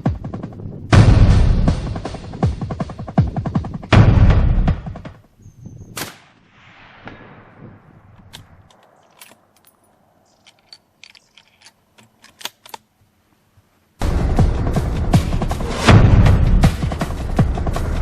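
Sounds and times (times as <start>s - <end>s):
rifle shot with echo: 6.0s - 9.5s.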